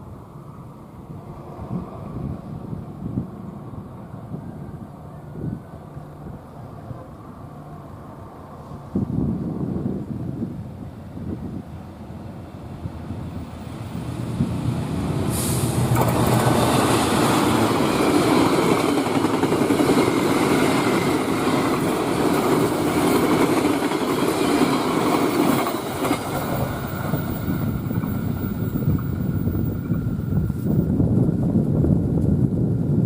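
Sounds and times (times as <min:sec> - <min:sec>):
train rumbling past: 0:00.0 - 0:33.0
wheels on rails: 0:14.4 - 0:32.4.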